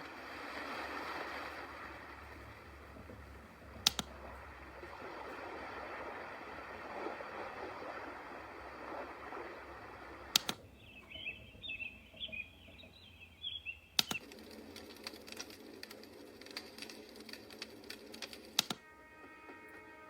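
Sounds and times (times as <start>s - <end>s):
crackling ticking noise: 1.6s - 18.8s
sound machine click: 10.3s - 10.6s
high chirping: 10.4s - 14.2s.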